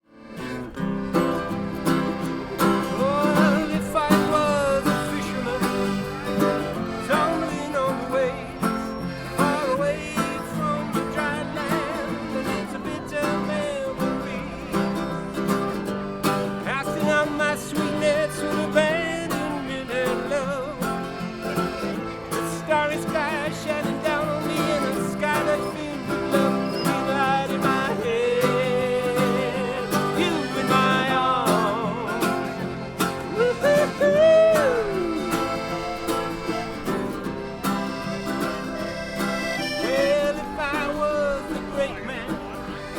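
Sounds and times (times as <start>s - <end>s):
acoustic guitar and string instruments: 0.0s - 42.9s
person singing: 22.8s - 36.8s.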